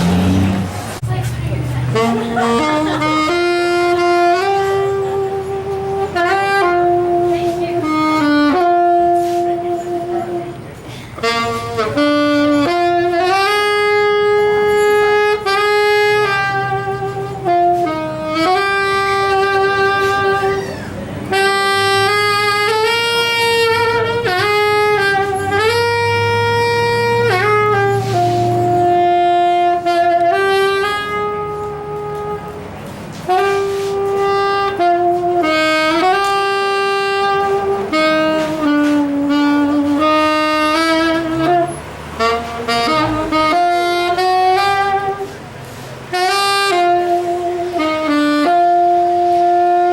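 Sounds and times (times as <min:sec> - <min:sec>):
saxophone melody: 0:00.0 - 0:49.9.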